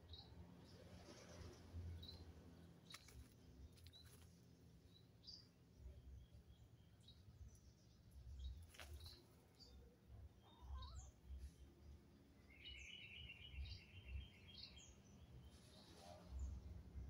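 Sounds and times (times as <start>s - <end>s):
faint bird chirps: 4.8s - 16.9s.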